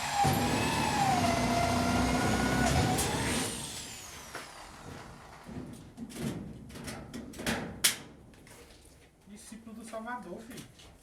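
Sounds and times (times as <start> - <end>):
electric drill boring: 0.0 - 4.7.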